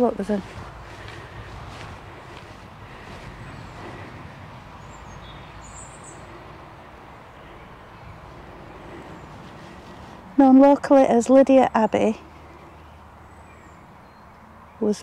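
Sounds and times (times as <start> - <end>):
small bird chirping: 4.8 - 6.4.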